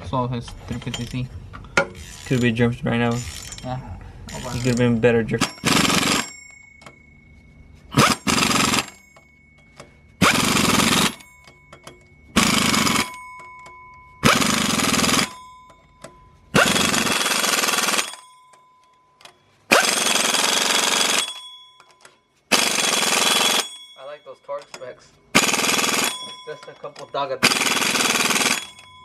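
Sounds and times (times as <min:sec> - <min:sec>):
impact wrench rattling: 0:00.5 - 0:07.1, 0:07.9 - 0:18.6, 0:19.2 - 0:23.8, 0:24.6 - 0:29.0.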